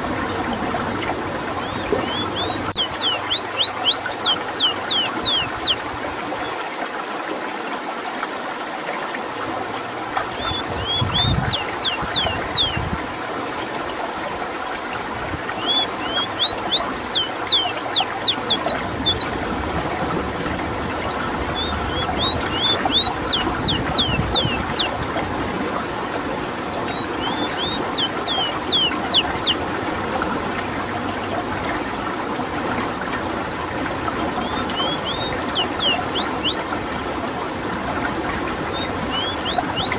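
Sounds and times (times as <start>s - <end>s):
bird singing high notes: 1.6s - 5.8s, 10.4s - 12.8s, 15.6s - 19.4s, 21.5s - 24.9s, 26.9s - 29.6s, 34.4s - 36.7s, 38.7s - 39.9s.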